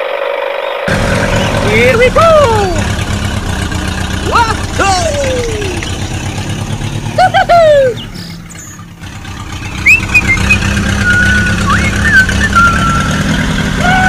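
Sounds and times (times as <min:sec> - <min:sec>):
tractor engine idling: 0:00.2 - 0:14.0
birds chirping: 0:00.6 - 0:14.0
falling squeaks: 0:09.5 - 0:14.0.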